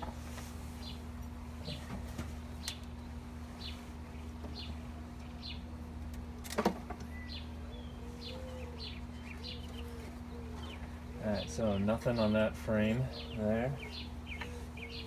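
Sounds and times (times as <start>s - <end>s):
steady low hum: 0.0s - 15.0s
bird chirping: 7.0s - 12.4s, 13.0s - 15.0s
dove cooing: 7.6s - 11.8s, 13.0s - 15.0s.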